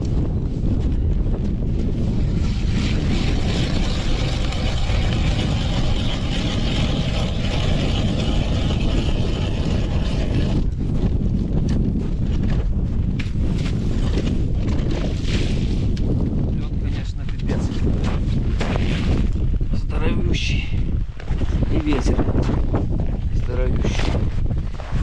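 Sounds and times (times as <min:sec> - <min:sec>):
wind buffeting microphone: 0:00.0 - 0:25.0
hissing grinding sound: 0:02.3 - 0:10.7.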